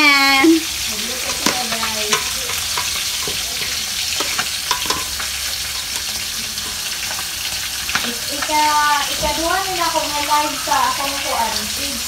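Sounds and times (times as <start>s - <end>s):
banana frying in hot oil: 0.0s - 12.0s.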